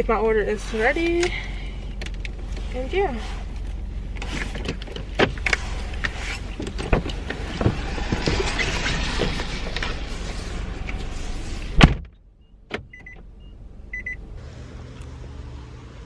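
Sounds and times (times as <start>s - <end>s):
door banging shut: 11.8s - 12.9s.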